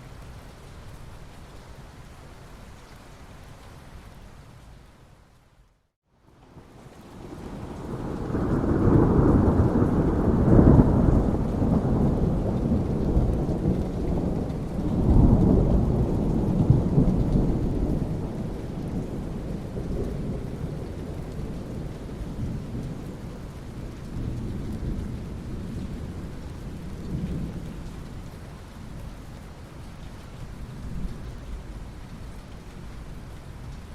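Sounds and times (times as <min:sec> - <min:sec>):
steady rain: 0:00.0 - 0:33.9
rolling thunder: 0:06.5 - 0:27.9.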